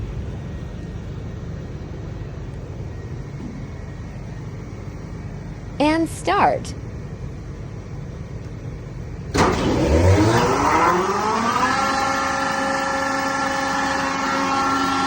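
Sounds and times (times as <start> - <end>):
machinery room hum: 0.0 - 10.1.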